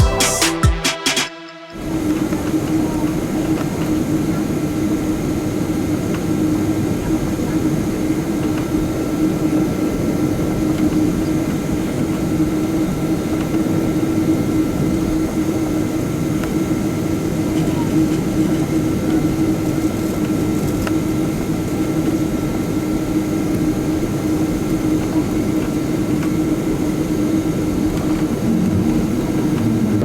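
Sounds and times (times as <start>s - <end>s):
jet engine and airflow noise: 0.0s - 30.0s
low hum: 27.4s - 30.0s.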